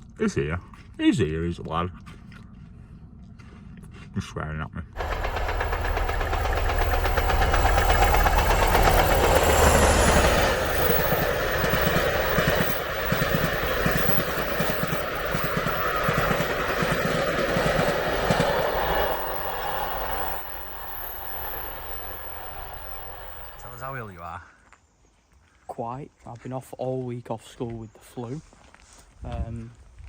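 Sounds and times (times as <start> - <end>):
train engine rumble: 5.0 - 24.2
train wheels clattering: 5.0 - 24.2.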